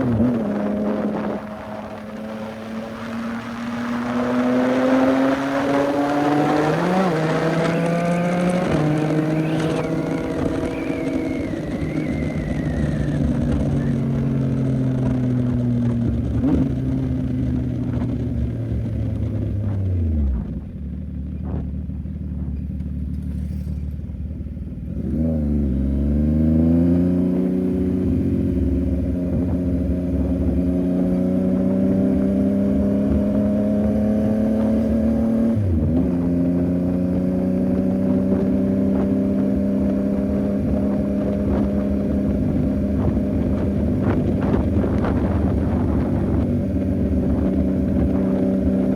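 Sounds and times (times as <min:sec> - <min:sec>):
motorcycle engine: 0:00.0 - 0:48.9.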